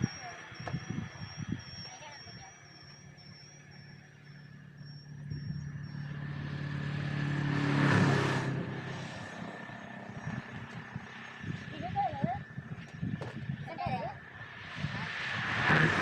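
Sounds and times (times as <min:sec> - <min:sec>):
vehicle passing by: 0:04.5 - 0:12.7, 0:14.2 - 0:16.0.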